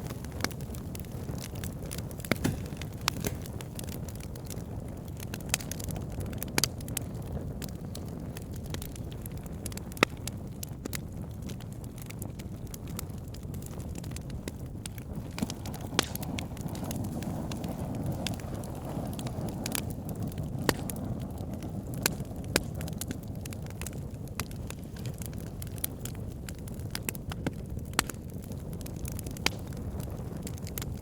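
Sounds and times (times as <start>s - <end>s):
burning logs crackling and popping: 0.0s - 31.0s
low rumble of flames: 0.0s - 31.0s.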